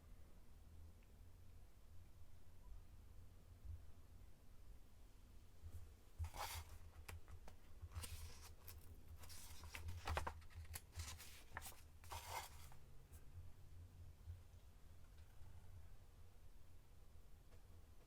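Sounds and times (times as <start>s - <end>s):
magazine pages turning: 6.2s - 12.8s.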